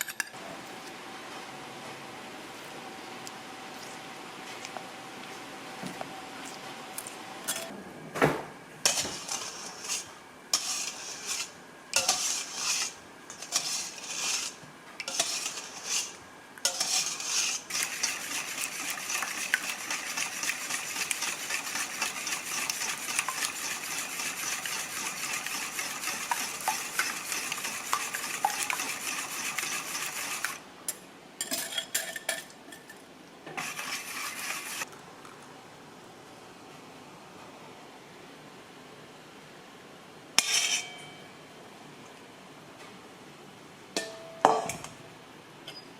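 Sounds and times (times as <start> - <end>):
whisk scraping a bowl: 8.9 - 30.6, 33.6 - 34.9.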